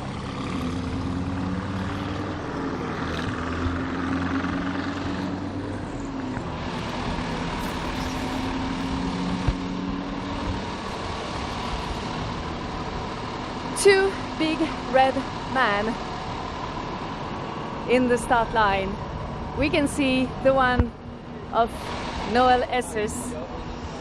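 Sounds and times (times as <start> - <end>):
diesel truck engines idling: 0.0 - 24.0.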